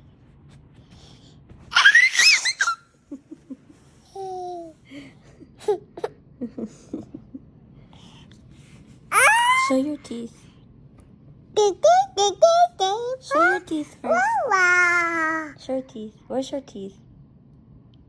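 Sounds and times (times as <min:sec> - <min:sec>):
toddler giggling and babbling: 0:01.7 - 0:02.8, 0:04.0 - 0:04.8, 0:09.1 - 0:10.0, 0:11.6 - 0:15.6
toddler squealing with laughter: 0:01.7 - 0:02.9, 0:09.1 - 0:09.8.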